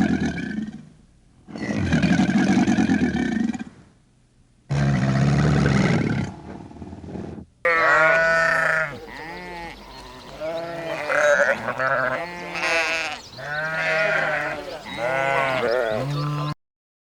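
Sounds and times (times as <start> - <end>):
low drawn-out animal call: 4.7 - 7.0
sheep bleating: 7.6 - 16.6.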